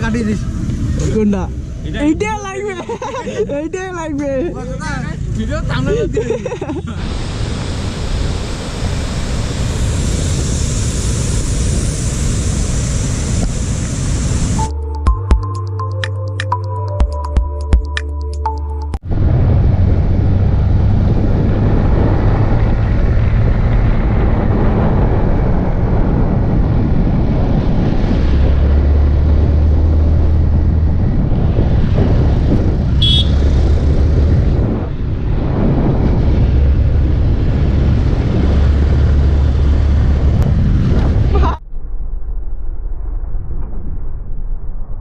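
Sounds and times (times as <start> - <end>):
wind rush on microphone: 5.9 - 14.7, 19.0 - 45.0
motorcycle engine running: 32.9 - 34.2.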